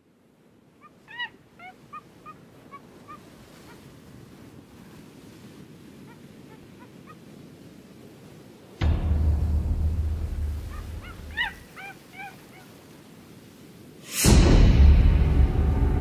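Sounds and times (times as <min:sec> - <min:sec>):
bird honking calls: 0:00.8 - 0:03.9, 0:10.4 - 0:12.8
low background rumble: 0:08.8 - 0:11.6.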